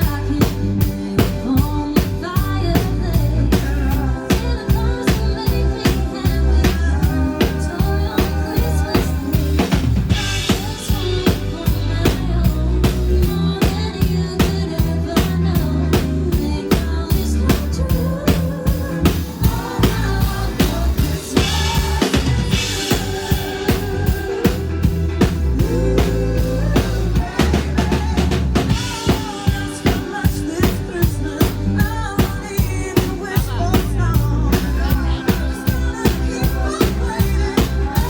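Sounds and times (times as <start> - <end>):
drum kit beat: 0.0 - 38.0
live band playing upbeat song: 0.0 - 38.0.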